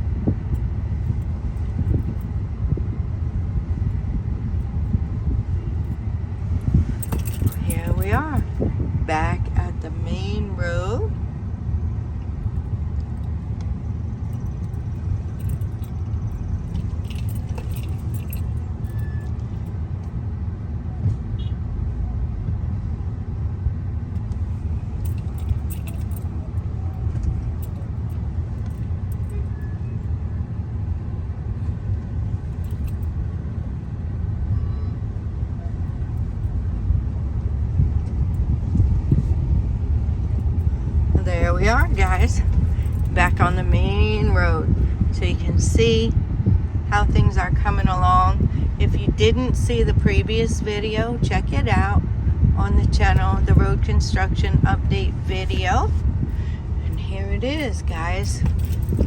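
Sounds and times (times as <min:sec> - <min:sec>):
car engine and tyre rumble: 0:00.0 - 0:59.0
faint light clinks: 0:06.7 - 0:08.5, 0:14.3 - 0:19.6, 0:25.0 - 0:29.7, 0:57.6 - 0:59.0.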